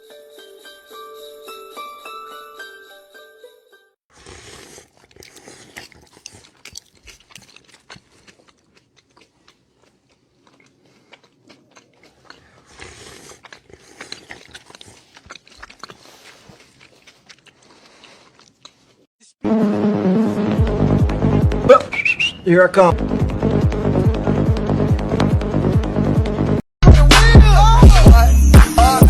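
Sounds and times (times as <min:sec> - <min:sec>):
crunchy chewing: 0:04.1 - 0:19.1.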